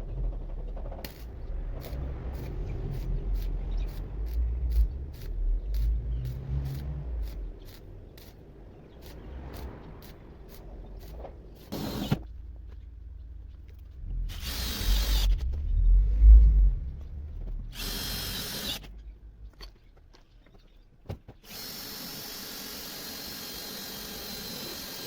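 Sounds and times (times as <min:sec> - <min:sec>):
power drill running: 0:11.6 - 0:12.2, 0:14.3 - 0:15.3, 0:17.7 - 0:18.9, 0:21.4 - 0:25.0.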